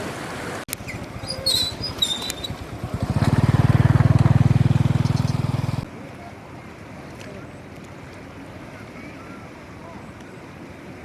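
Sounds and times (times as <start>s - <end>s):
small engine puttering: 1.7s - 5.8s.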